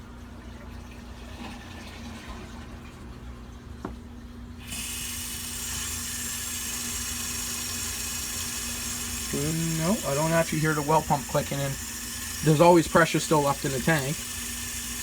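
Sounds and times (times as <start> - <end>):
water tap running: 4.6 - 15.0.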